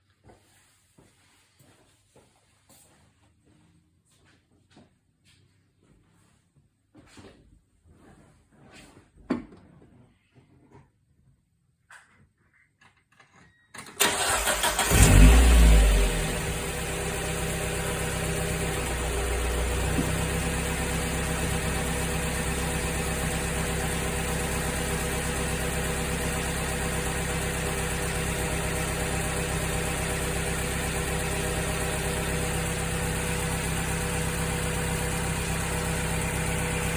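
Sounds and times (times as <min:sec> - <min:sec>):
car engine starting and idling: 0:13.8 - 0:36.9.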